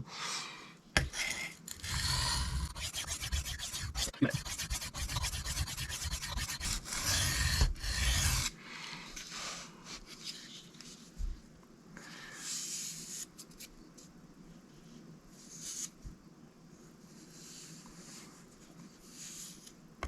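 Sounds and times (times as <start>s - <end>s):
knife scraping on sharpening stone: 1.7s - 7.3s.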